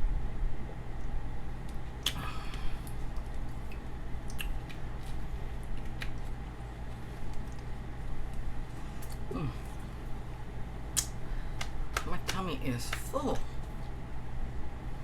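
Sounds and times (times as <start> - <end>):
steady low hum: 0.0 - 15.0
close chewing with mouth clicks: 1.7 - 10.2.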